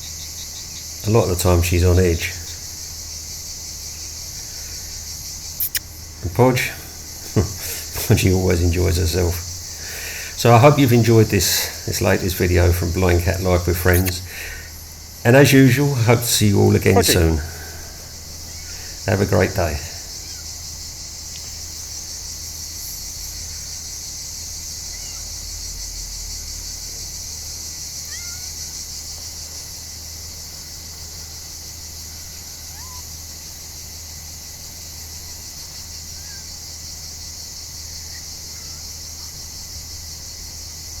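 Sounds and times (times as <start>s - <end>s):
insects trilling: 0.0s - 41.0s
faint short chirps: 5.6s - 5.9s.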